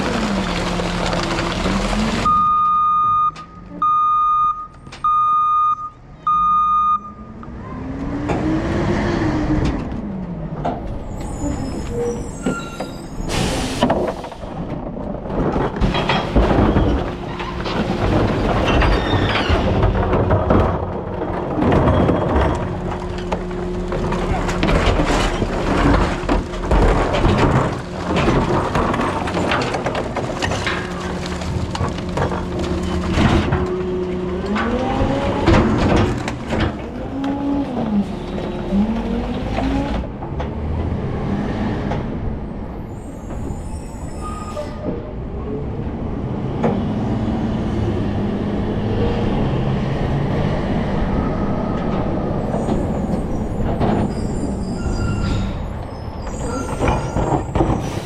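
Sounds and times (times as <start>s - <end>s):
clanks and bangs: 10.6s - 40.9s
rising and falling squeals: 10.9s - 13.5s, 42.8s - 45.0s, 51.0s - 58.0s.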